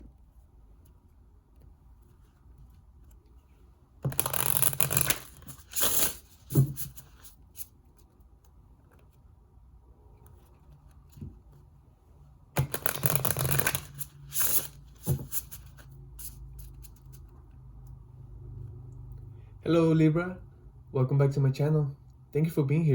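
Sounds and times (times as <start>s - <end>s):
cards being shuffled: 4.0s - 7.7s, 12.6s - 17.2s.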